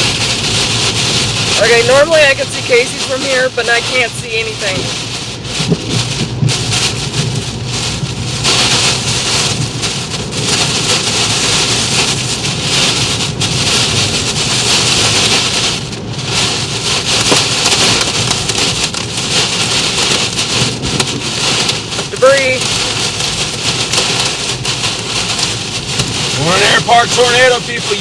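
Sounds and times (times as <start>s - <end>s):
heavy rain beating on a car: 0.0s - 28.0s.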